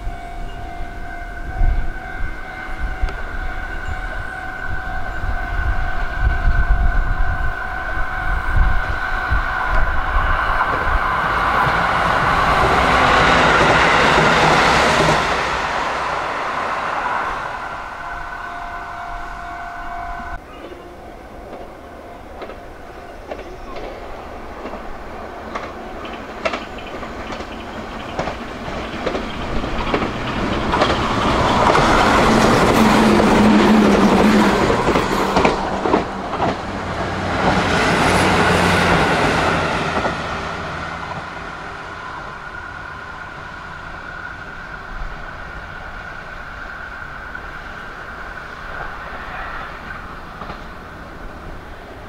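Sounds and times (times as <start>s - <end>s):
train wheels clacking: 9.3s - 17.8s, 22.3s - 41.4s.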